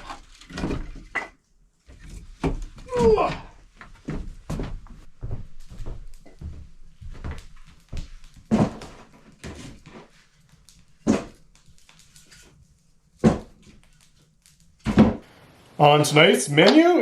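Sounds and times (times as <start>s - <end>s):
heavy wooden thuds of logs: 13.2s - 13.6s.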